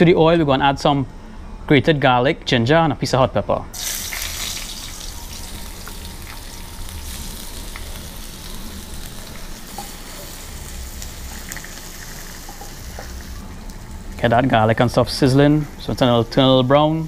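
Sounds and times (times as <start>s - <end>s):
garlic sizzling in oil: 3.8s - 14.0s.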